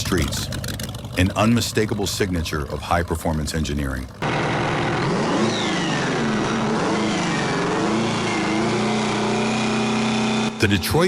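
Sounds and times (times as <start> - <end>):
engine revving: 4.2 - 11.0.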